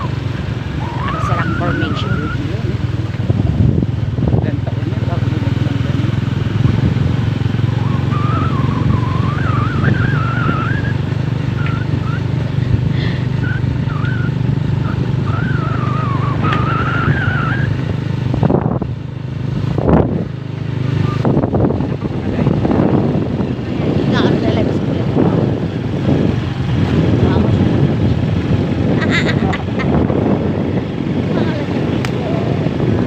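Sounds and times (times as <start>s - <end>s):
motorcycle engine running: 0.0s - 33.0s
wind and road noise: 0.0s - 33.0s
thin wavering high tone: 0.8s - 2.7s, 7.8s - 12.3s, 13.4s - 17.8s.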